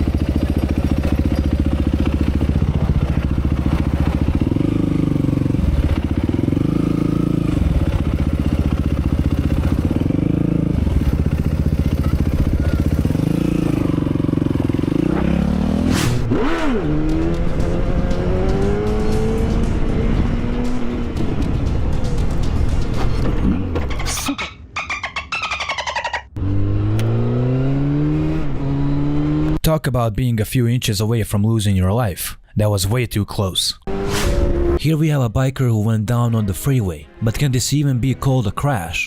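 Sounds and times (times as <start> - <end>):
motorcycle engine accelerating: 0.0 - 23.8, 25.0 - 29.6, 33.8 - 34.8.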